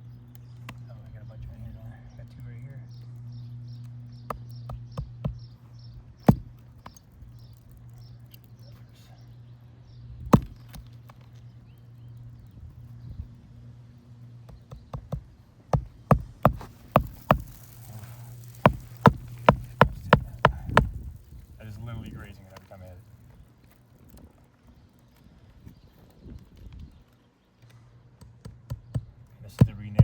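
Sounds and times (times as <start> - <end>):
hammer striking nails: 10.4 - 10.8, 14.5 - 17.7, 18.5 - 21.0.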